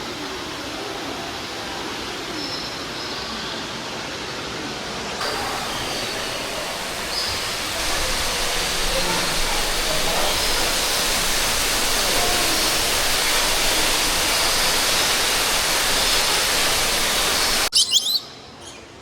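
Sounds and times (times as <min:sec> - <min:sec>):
rushing falling water: 0:05.2 - 0:17.7
short high bird chirps: 0:17.7 - 0:18.8.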